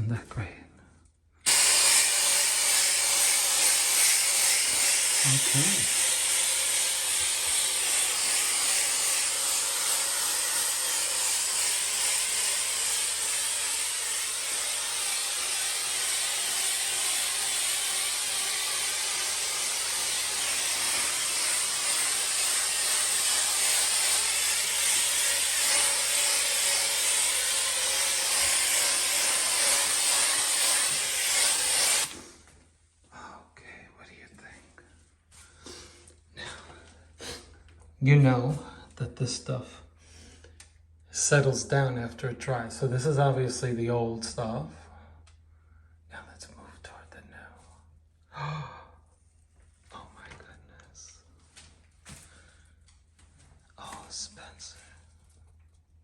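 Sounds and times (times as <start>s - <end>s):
aerosol can spraying hiss: 1.5s - 32.3s.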